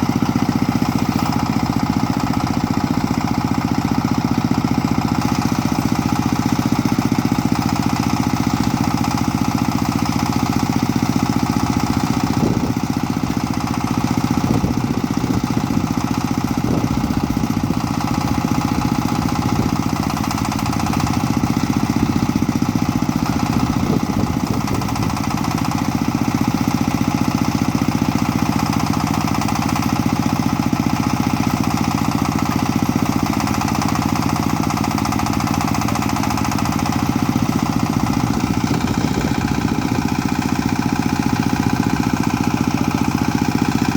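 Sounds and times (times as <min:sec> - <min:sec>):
backhoe engine chugging: 0:00.0 - 0:43.9.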